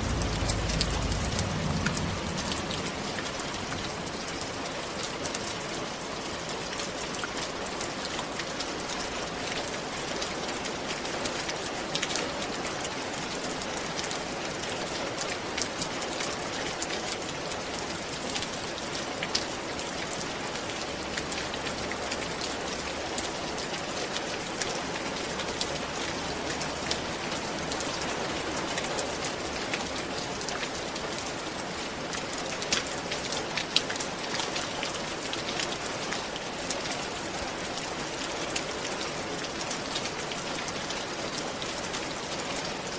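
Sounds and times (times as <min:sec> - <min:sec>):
rain on a roof: 0:00.0 - 0:42.9.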